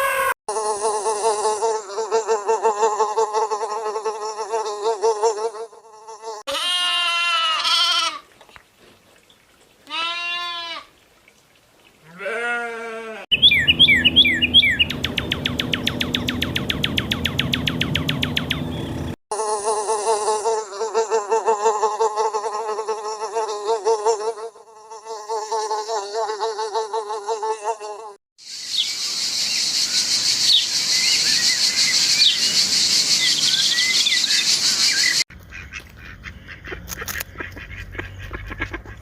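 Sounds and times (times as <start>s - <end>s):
bleat-like calls: 6.2s - 8.3s, 9.8s - 10.9s, 12.0s - 13.3s
falling chirps: 13.3s - 19.2s.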